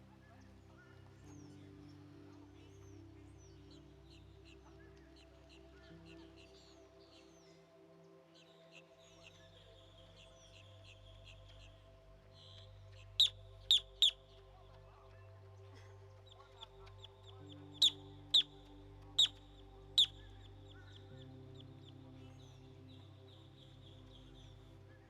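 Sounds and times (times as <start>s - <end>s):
soft ambient music: 0.0s - 25.0s
faint high chirping: 13.1s - 14.4s, 16.3s - 22.0s.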